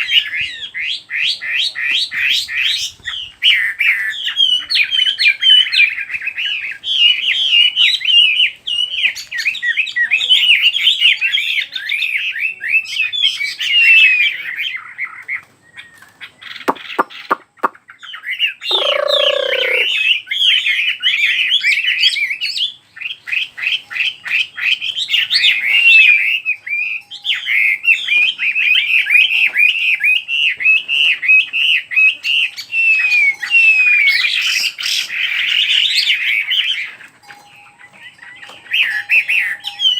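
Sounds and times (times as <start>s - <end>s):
bird singing whistled song: 0.0s - 39.9s
sharp bird clicks: 16.5s - 17.8s, 18.7s - 19.9s
short low bird call: 18.7s - 20.0s.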